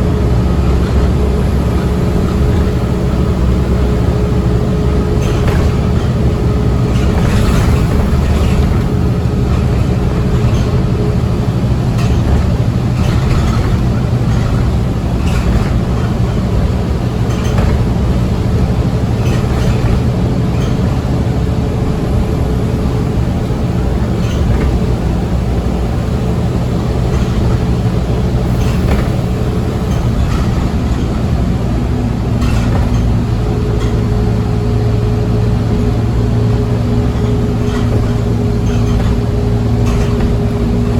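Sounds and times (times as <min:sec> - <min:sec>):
bus engine drone: 0:00.0 - 0:40.9
road and tyre noise: 0:00.0 - 0:40.9
short rattles: 0:26.9 - 0:40.9.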